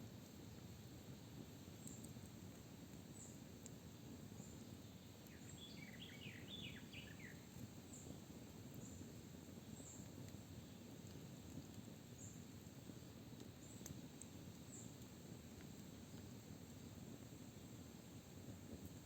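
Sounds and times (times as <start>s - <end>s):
songbird singing: 5.3s - 7.5s.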